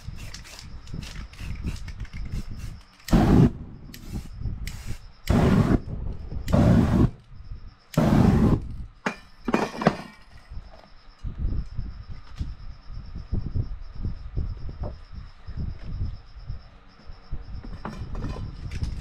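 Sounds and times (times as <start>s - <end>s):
spray paint can hissing: 0.0s - 5.8s.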